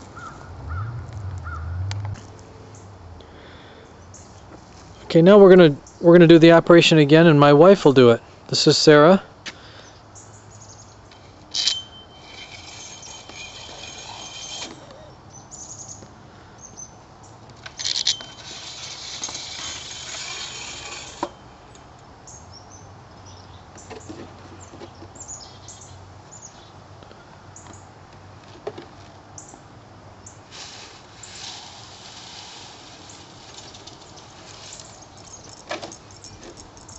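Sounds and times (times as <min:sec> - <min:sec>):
rasping rattling of metal parts: 0:11.1 - 0:15.1, 0:17.6 - 0:21.4, 0:31.2 - 0:36.9.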